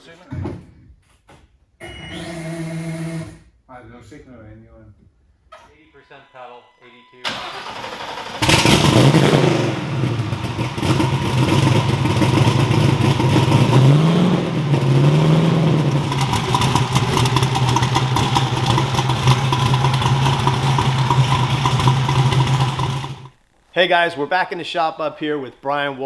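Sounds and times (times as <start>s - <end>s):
car engine starting and idling: 7.2s - 23.4s.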